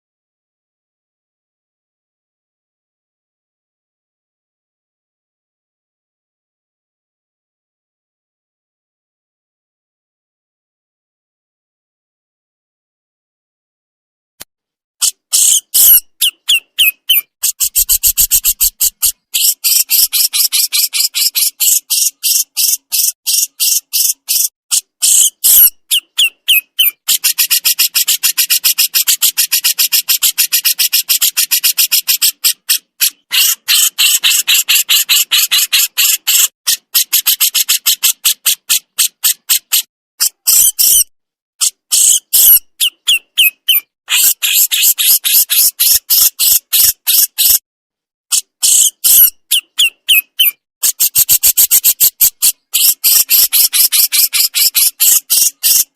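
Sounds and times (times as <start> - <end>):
bird chattering rapidly: 15.0 - 47.6, 48.3 - 55.9.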